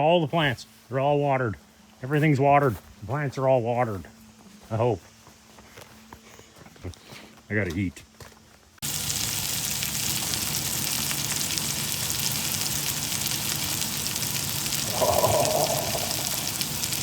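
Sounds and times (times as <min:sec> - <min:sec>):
garden sprinkler water hiss: 0:06.9 - 0:17.0.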